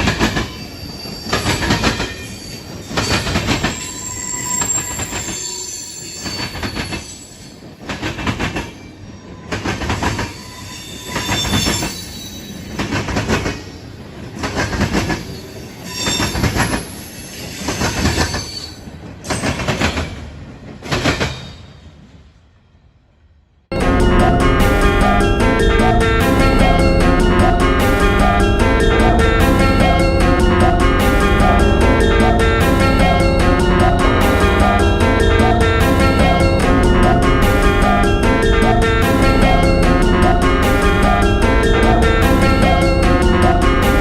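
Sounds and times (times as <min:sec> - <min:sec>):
train wheels banging over rail joints: 0:00.0 - 0:03.9, 0:16.0 - 0:21.8
metallic wheel squeal: 0:00.0 - 0:07.6, 0:09.0 - 0:12.8, 0:15.3 - 0:18.9.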